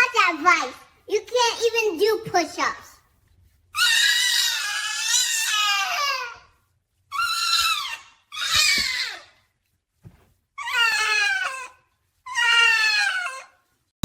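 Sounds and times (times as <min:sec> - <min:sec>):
high-pitched animal cries: 0:03.8 - 0:06.5, 0:07.1 - 0:09.4, 0:10.6 - 0:13.8.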